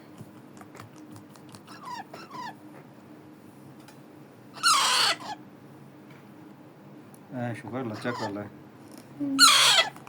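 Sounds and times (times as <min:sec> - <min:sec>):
parakeet chick squawking: 0:01.6 - 0:02.6, 0:04.6 - 0:05.4, 0:07.9 - 0:08.4, 0:09.4 - 0:10.0
parakeet chicks chirping: 0:01.6 - 0:02.6, 0:04.6 - 0:05.4, 0:07.8 - 0:08.5, 0:09.4 - 0:10.0.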